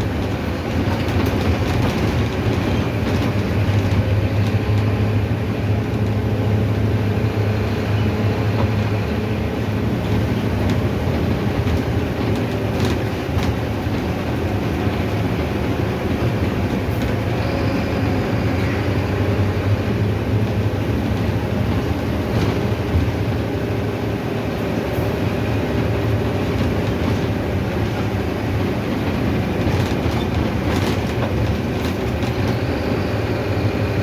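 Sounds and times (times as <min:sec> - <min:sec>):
bus diesel engine drone: 0:00.0 - 0:34.0
road noise: 0:00.0 - 0:34.0
light rattles and clicks: 0:26.0 - 0:32.8.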